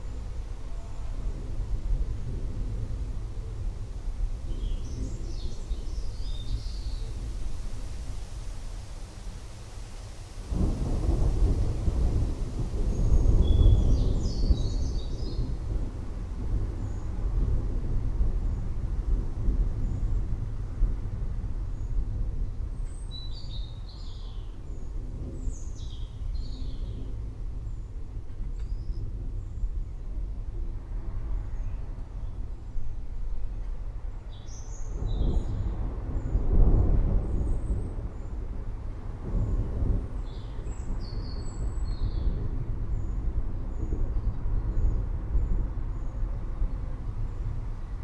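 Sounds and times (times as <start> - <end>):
rain: 0.0 - 48.0
distant rolling thunder: 10.4 - 48.0.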